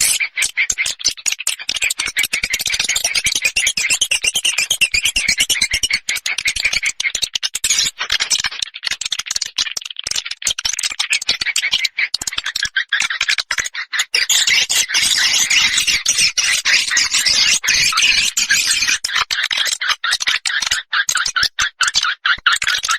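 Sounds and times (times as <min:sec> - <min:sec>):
high twittering bird chirps: 0:01.5 - 0:07.2, 0:13.8 - 0:22.9.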